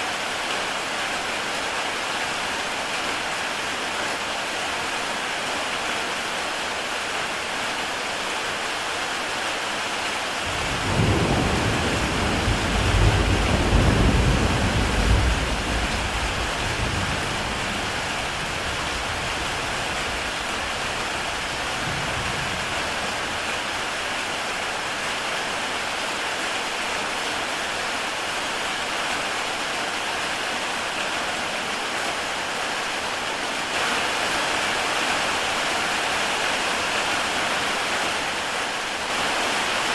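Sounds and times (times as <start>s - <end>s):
heavy rain on a tile roof: 0.0s - 39.9s
thunder rumbling: 10.5s - 23.4s.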